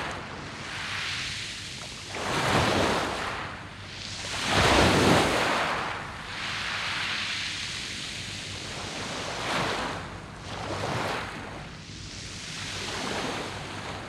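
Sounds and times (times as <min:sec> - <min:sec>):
surf washing over pebbles: 0:04.1 - 0:07.4.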